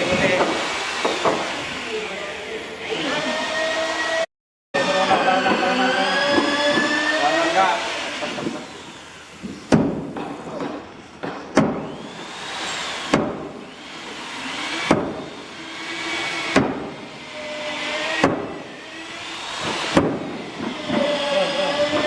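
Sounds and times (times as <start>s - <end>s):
hand tool striking timber: 0.4s - 1.5s, 9.6s - 12.0s, 13.1s - 13.6s, 14.8s - 15.3s, 16.5s - 17.0s, 18.2s - 18.7s, 19.6s - 21.1s
wavering machine whine: 1.8s - 9.4s.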